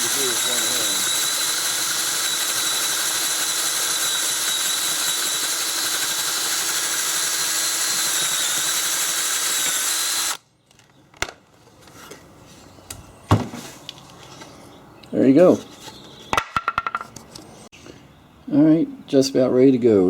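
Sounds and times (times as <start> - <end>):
power drill boring wood: 0.0 - 10.4.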